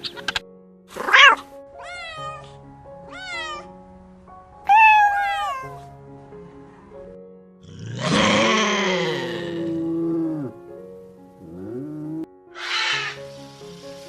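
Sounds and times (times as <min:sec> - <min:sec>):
background music: 0:00.0 - 0:14.0
cat meowing: 0:01.0 - 0:03.8, 0:04.7 - 0:05.9, 0:12.6 - 0:13.2.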